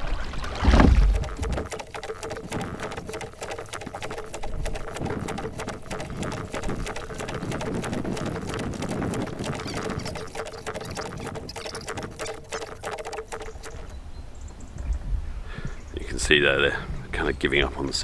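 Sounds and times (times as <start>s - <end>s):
water lapping against hull: 0.0s - 14.0s.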